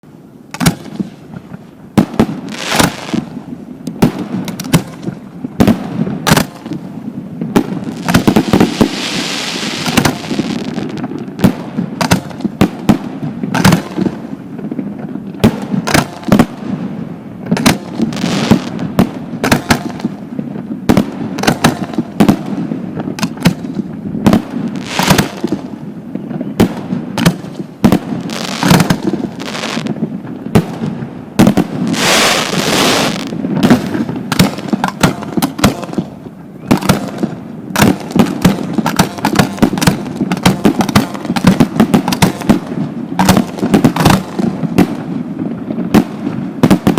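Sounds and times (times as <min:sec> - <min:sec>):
fireworks bangs: 0:00.6 - 0:46.9
fireworks hissing crackle: 0:00.8 - 0:12.8, 0:17.8 - 0:19.3, 0:22.0 - 0:36.3.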